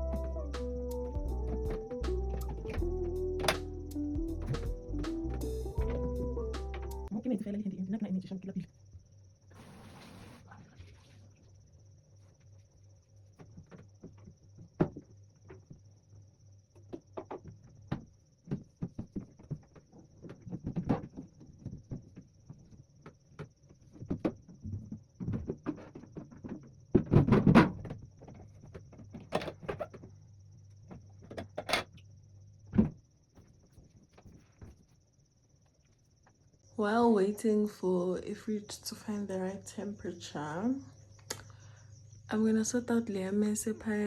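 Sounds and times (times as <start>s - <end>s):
objects knocking and rattling: 16.8s - 30.2s, 30.8s - 32.0s.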